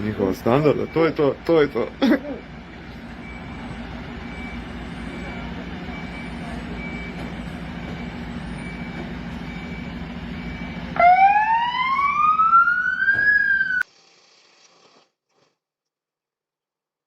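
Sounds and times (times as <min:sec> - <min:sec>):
vehicle engine humming: 0:00.0 - 0:14.6
siren wail: 0:10.5 - 0:13.8.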